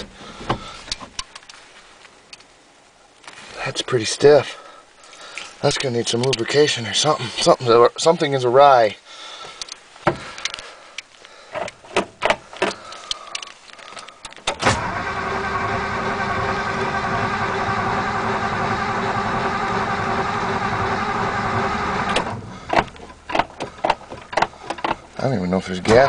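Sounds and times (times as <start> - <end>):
engine starter cranking: 14.4 - 25.0
clicks and knocks: 22.2 - 25.1.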